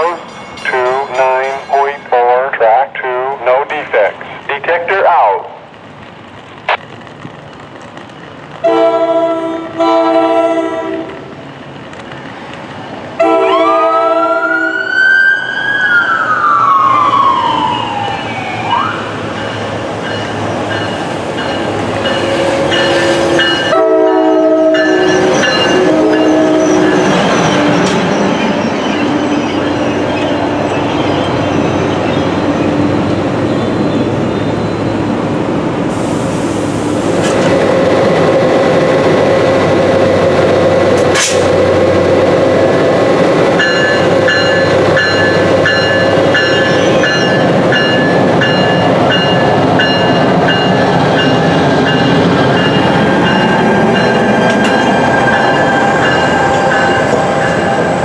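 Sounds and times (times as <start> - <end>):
train rumbling: 0.0 - 14.8, 15.4 - 58.0
train horn blasts: 8.6 - 11.2, 13.2 - 14.8, 22.1 - 27.0.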